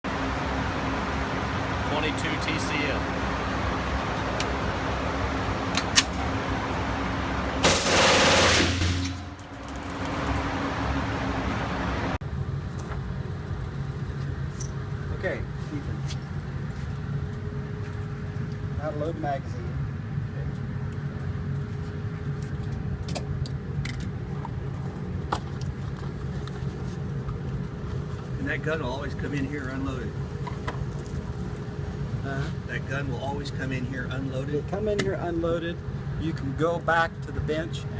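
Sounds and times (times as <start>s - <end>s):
low hum: 0.0s - 33.5s
gunshots: 7.6s - 9.3s.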